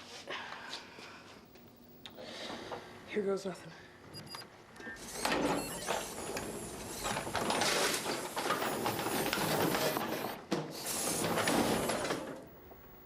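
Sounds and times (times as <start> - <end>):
robot motors whirring and clattering: 5.0 - 12.5.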